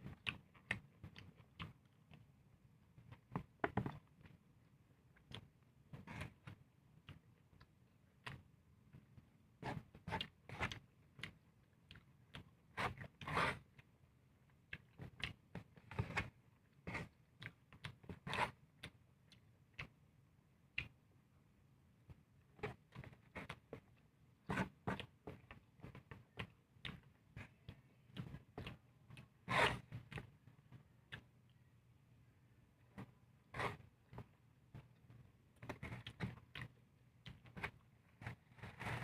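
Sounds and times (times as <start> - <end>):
person chewing and smacking: 0.1 - 2.3, 6.3 - 9.3, 10.2 - 20.0, 22.1 - 31.6, 34.0 - 37.8.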